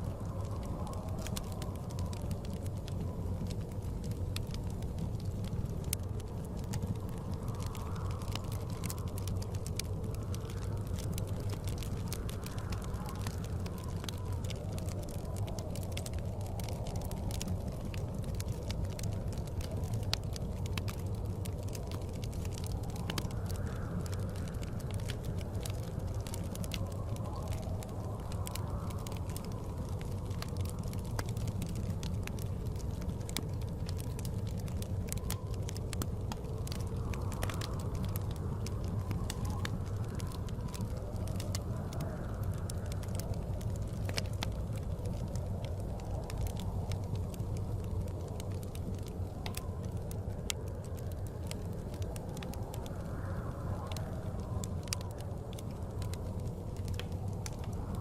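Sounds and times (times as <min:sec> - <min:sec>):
blizzard wind: 0:00.0 - 0:58.0
fireplace crackling: 0:00.0 - 0:58.0.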